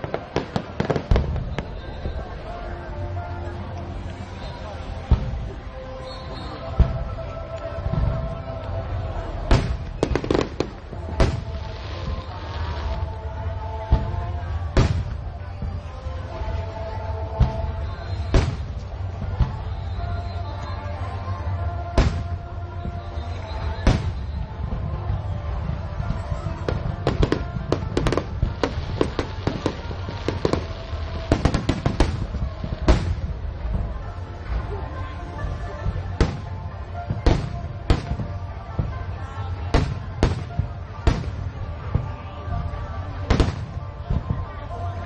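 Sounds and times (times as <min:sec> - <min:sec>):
fireworks bangs: 0:00.0 - 0:02.3, 0:09.3 - 0:20.3, 0:21.9 - 0:34.0, 0:35.8 - 0:44.5
fireworks crackle: 0:00.0 - 0:45.0
background music with held tones: 0:00.1 - 0:45.0.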